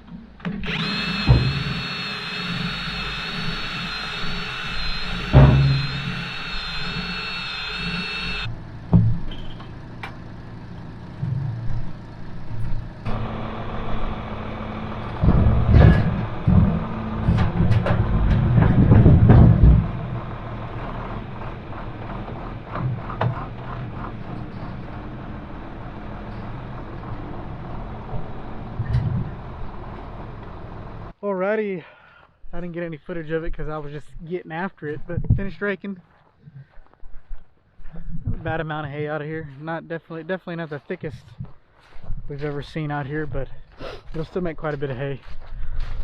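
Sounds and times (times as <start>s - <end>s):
diesel tractor engine running: 0.6s - 31.1s
loud knocks and clanks: 15.0s - 20.4s.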